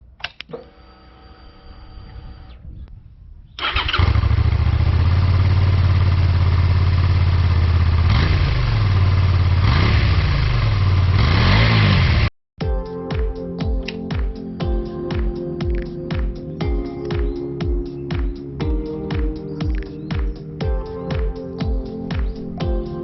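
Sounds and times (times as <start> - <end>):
motorcycle engine idling: 3.6 - 11.3
motorcycle engine starting: 3.6 - 12.3.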